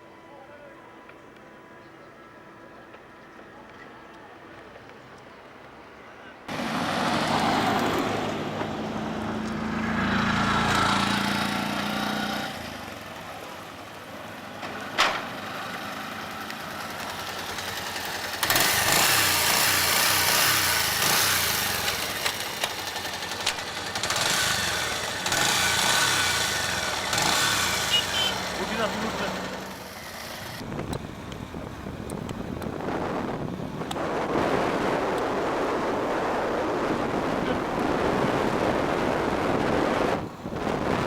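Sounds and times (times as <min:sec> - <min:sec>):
motorcycle engine running: 0:16.1 - 0:34.2.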